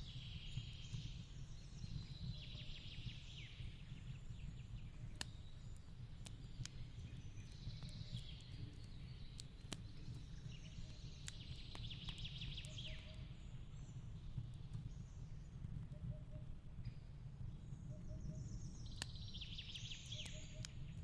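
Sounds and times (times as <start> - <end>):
fireplace crackling: 3.6 - 16.0
birds chirping: 17.8 - 21.0.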